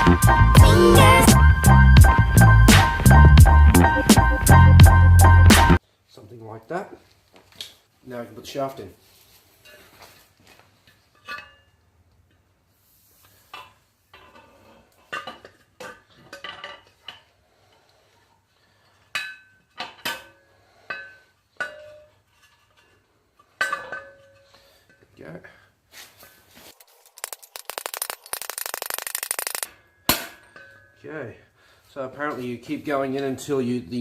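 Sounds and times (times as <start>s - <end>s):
metallic clinks and knocks: 26.8s - 29.7s.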